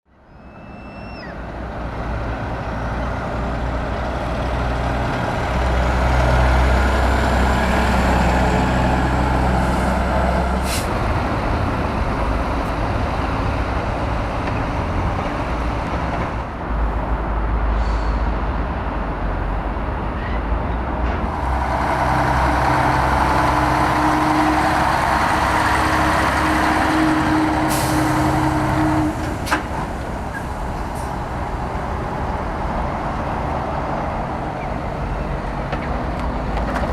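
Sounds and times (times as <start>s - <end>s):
diesel trucks driving past: 0.2s - 36.9s
air brake hisses: 17.7s - 18.4s.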